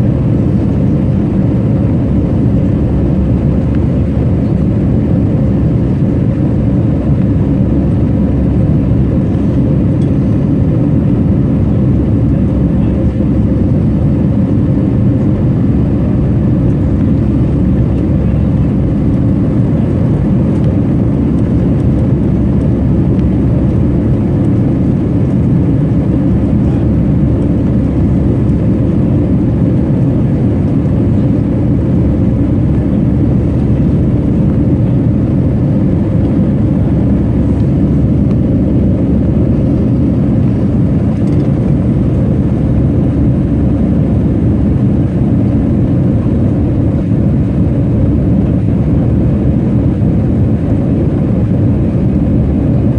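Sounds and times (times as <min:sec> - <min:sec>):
jet engines rumbling: 0:00.0 - 0:52.9.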